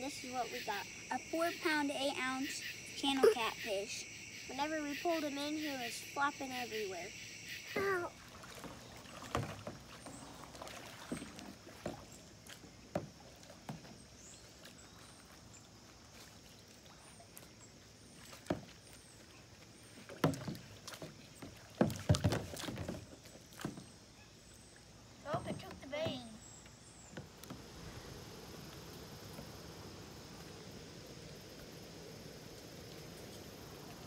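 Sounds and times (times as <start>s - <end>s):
faint water noise: 0.0s - 34.0s
knocks and bumps on a kayak: 7.7s - 14.2s, 18.3s - 19.3s, 19.9s - 24.1s, 25.2s - 27.7s.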